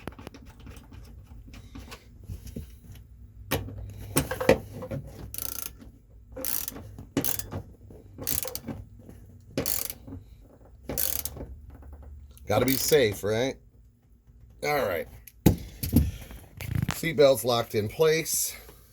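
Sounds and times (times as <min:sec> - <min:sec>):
socket ratchet clicking: 0:05.3 - 0:05.8, 0:06.4 - 0:07.5, 0:08.2 - 0:08.7, 0:09.6 - 0:10.1, 0:10.9 - 0:11.4, 0:12.4 - 0:13.1.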